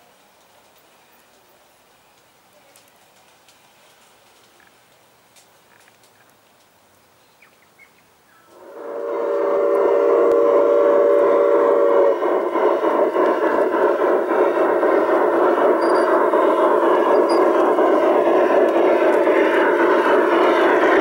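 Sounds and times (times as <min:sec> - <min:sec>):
model locomotive whistle: 0:08.5 - 0:21.0
steady rushing noise: 0:08.6 - 0:21.0.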